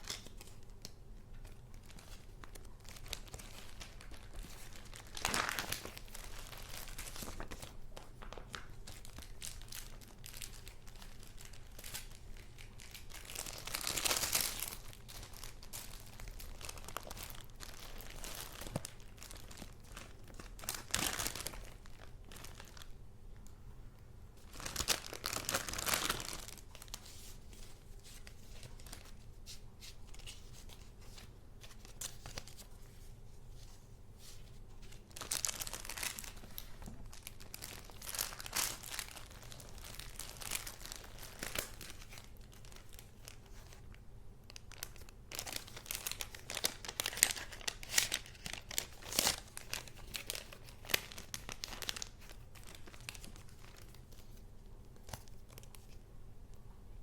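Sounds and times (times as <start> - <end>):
paper and card rustling: 1.3 - 10.8, 45.3 - 54.4.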